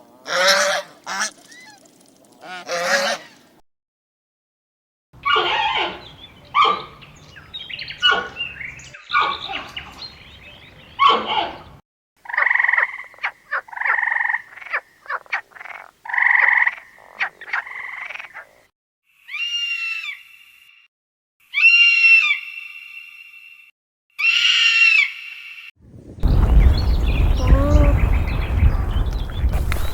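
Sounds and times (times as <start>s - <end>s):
high gliding animal call: 0.3s - 3.4s, 27.2s - 29.9s
harsh noisy animal calls: 27.2s - 29.0s.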